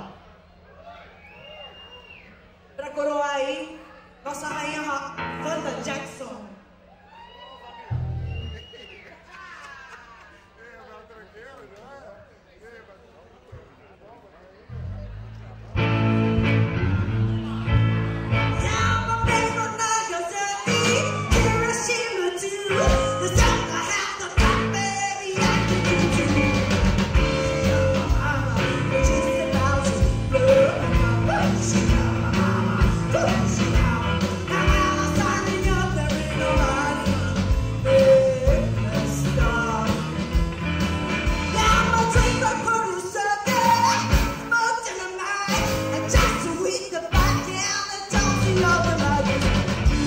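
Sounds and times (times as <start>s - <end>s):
live rock and roll band: 15.7s - 50.0s
person singing: 17.4s - 40.4s, 41.5s - 50.0s.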